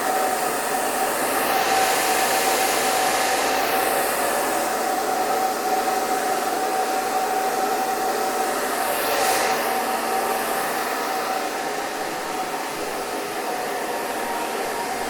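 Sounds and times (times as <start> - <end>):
hair dryer running: 0.0 - 15.0.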